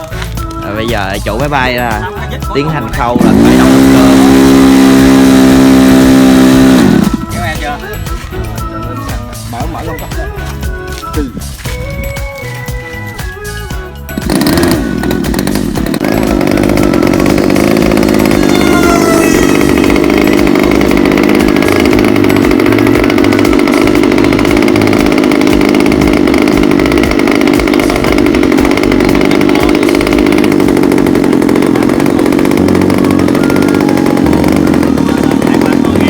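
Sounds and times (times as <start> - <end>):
model airplane engine running: 2.5 - 7.6, 14.2 - 36.0.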